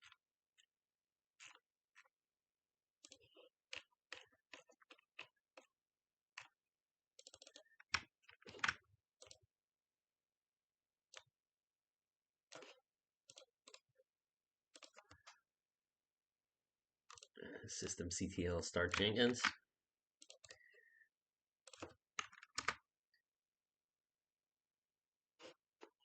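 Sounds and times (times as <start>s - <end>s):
keyboard typing: 7.2s - 9.4s, 18.4s - 19.6s, 21.6s - 22.9s.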